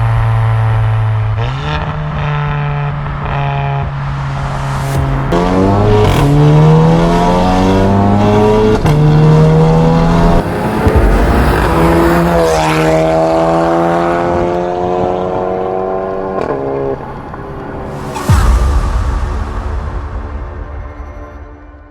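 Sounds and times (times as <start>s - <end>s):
car engine accelerating hard: 0.0s - 18.3s.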